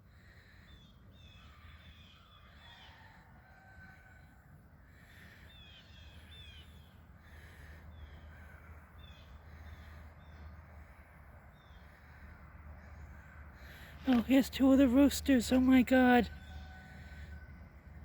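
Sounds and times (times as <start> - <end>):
faint bird chirps: 5.2 - 10.6.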